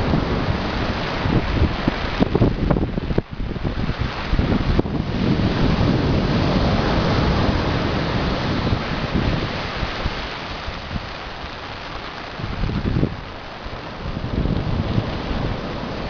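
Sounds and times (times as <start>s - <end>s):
storm surf breaking on beach: 0.0s - 16.0s
wind buffeting microphone: 0.0s - 16.0s.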